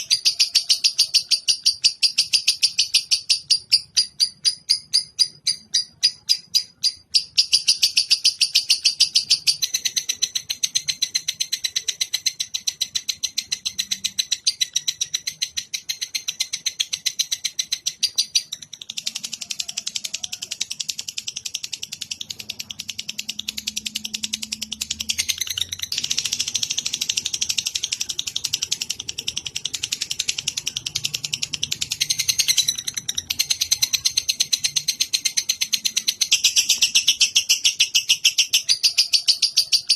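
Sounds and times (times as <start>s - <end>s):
songbird fast chatter: 0.0s - 39.9s.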